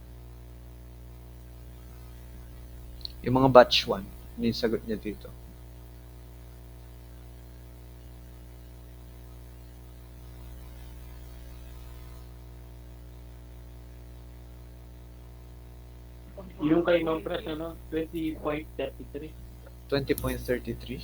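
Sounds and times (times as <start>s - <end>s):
electrical mains hum: 0.0s - 21.0s
faint hiss: 1.8s - 5.5s, 16.3s - 21.0s.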